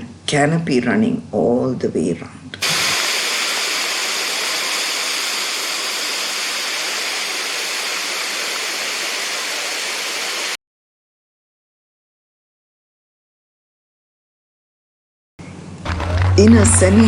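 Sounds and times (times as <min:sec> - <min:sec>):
waterfall rushing: 0:02.6 - 0:10.6.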